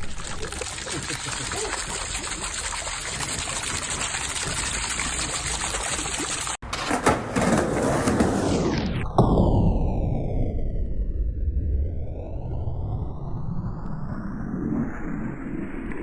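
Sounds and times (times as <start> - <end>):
fountain water splashing: 0.0 - 6.6.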